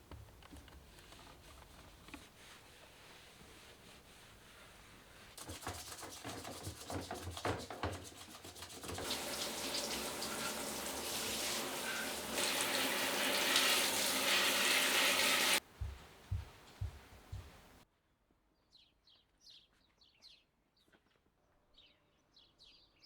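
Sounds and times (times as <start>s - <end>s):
water rushing: 9.0s - 15.6s.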